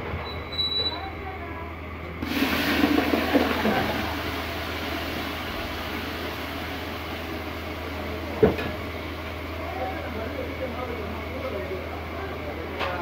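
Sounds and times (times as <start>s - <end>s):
sizzling in hot fat: 2.2s - 9.6s.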